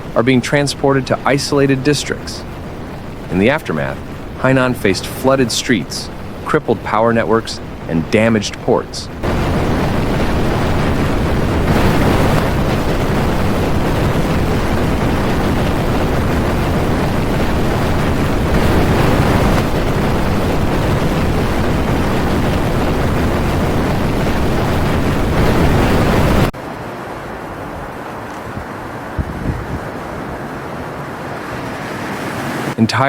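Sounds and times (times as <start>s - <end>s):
strong wind buffeting microphone: 0.0s - 32.8s
rushing surf: 0.0s - 33.0s.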